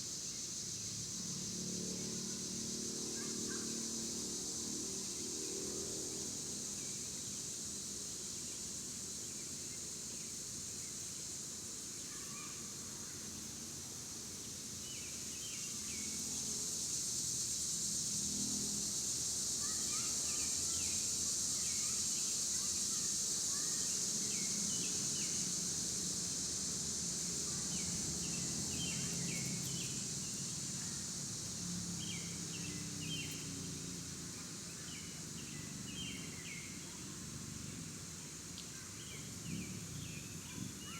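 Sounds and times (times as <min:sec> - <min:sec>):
high-pitched insect drone: 0:15.4 - 0:36.9.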